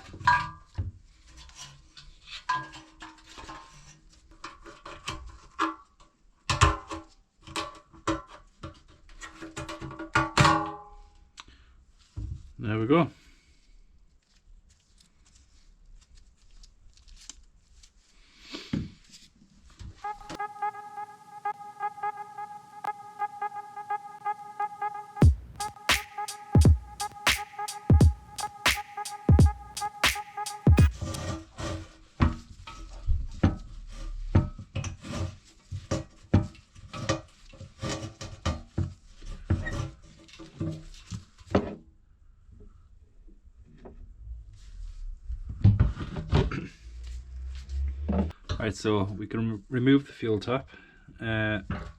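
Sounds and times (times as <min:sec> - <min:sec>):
music with steady beat: 0:20.0 - 0:31.2.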